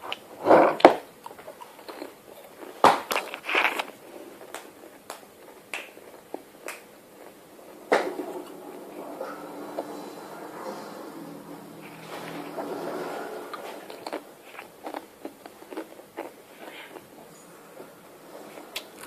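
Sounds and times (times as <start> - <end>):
crackers being crunched: 1.2 - 8.2, 13.5 - 17.1.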